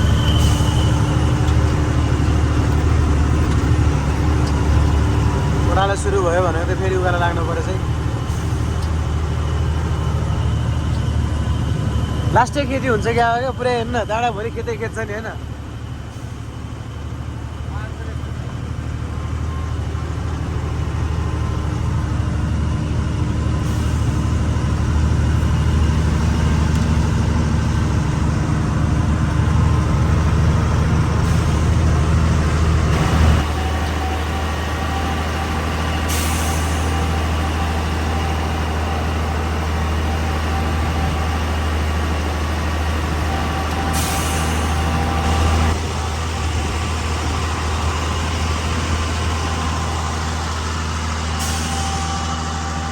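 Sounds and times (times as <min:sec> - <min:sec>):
truck engine running: 0:00.0 - 0:52.9
air hissing: 0:31.1 - 0:37.8, 0:43.7 - 0:45.8, 0:51.2 - 0:52.9.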